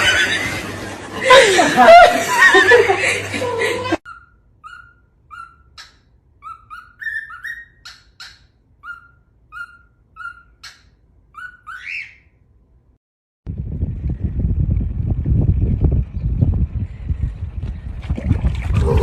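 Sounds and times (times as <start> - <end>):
bird chirping: 4.1 - 12.4.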